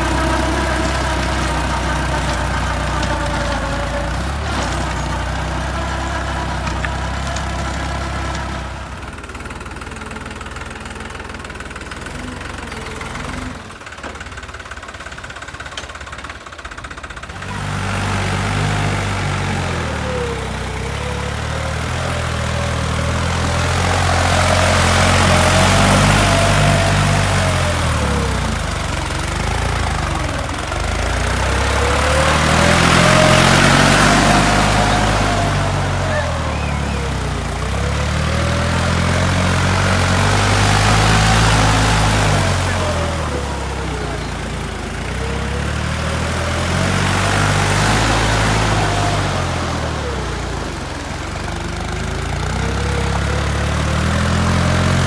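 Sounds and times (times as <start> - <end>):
tractor diesel engine revving: 0.0 - 55.0.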